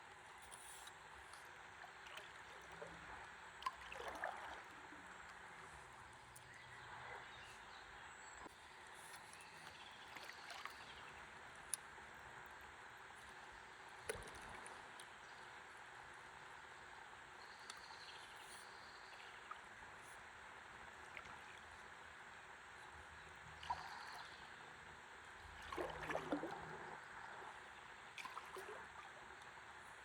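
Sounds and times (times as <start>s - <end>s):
gently moving river water: 0.0s - 30.0s
water gurgling and splashing: 1.7s - 5.2s, 25.5s - 29.3s
water splash: 3.6s - 4.7s, 25.6s - 26.8s.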